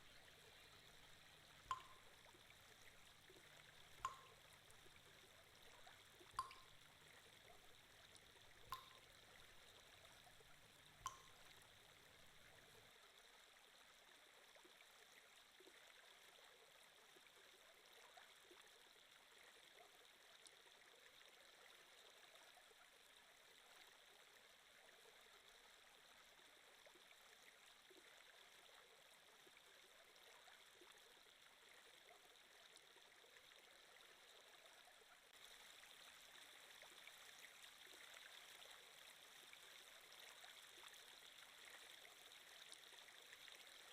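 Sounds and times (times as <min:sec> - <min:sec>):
stream trickling: 0:00.0 - 0:43.9.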